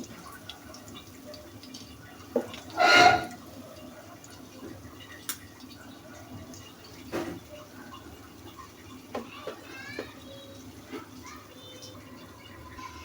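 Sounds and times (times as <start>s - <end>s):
faint dripping water: 0.0s - 13.0s.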